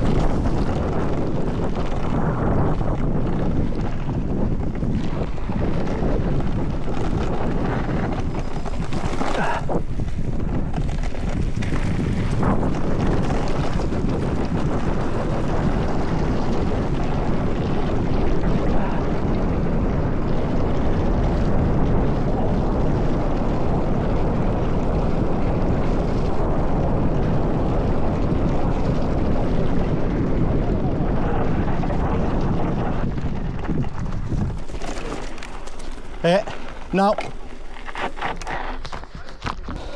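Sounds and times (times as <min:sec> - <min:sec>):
bike rattling: 0:00.0 - 0:18.6, 0:32.0 - 0:39.9
tyres rumbling on rough ground: 0:00.0 - 0:39.9
wind buffeting microphone: 0:00.0 - 0:39.9.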